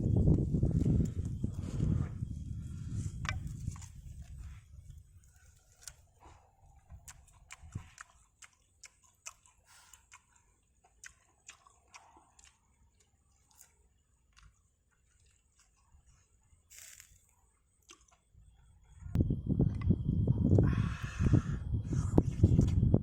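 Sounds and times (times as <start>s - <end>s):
person chewing crispy chicken: 3.3s - 18.3s.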